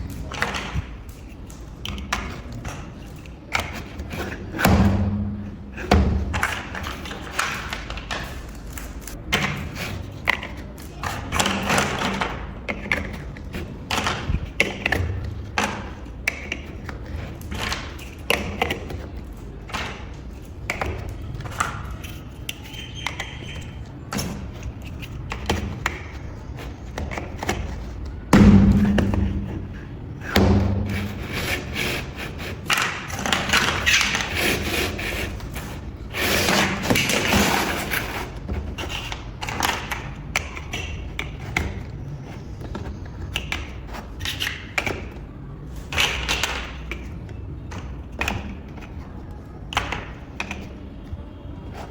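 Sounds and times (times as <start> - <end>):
loud thump: 28.3 - 31.4.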